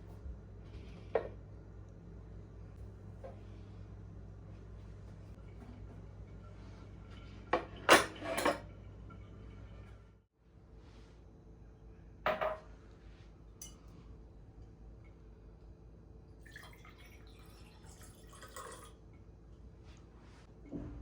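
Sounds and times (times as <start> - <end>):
faint steady hum: 0.0 - 21.0
kitchenware clinking: 7.6 - 8.7, 12.3 - 12.6.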